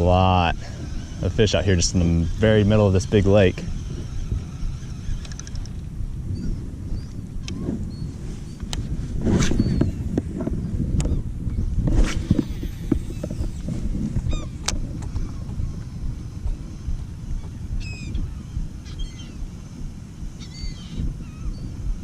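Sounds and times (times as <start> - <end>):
seabirds calling: 0.0 - 8.6, 14.2 - 21.8
low rumble: 0.0 - 22.0.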